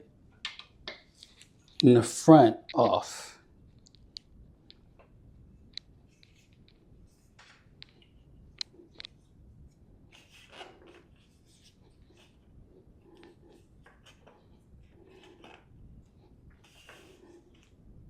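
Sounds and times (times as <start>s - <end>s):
small clicks and handling sounds: 3.7s - 11.7s.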